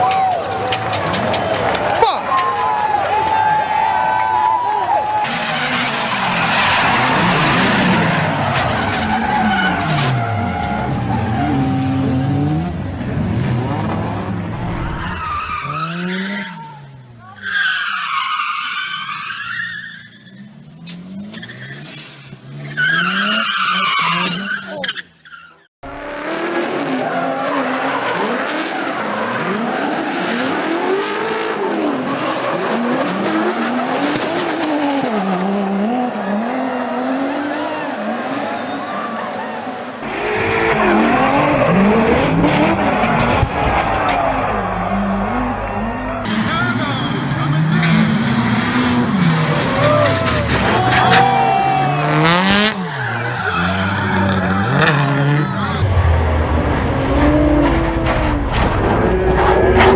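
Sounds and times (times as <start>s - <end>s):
tyres skidding: 0.0s - 59.9s
tyres screeching: 14.5s - 25.7s, 49.6s - 55.8s
car engine revving: 25.8s - 59.9s.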